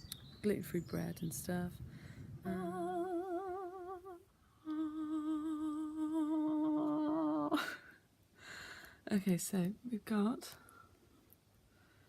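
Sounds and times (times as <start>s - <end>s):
woman humming: 2.5s - 7.9s.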